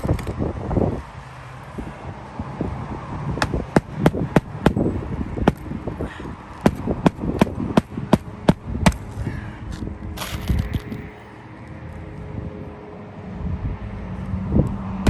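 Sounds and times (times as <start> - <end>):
hammer striking roofing nails: 3.4 - 5.6, 6.6 - 9.0.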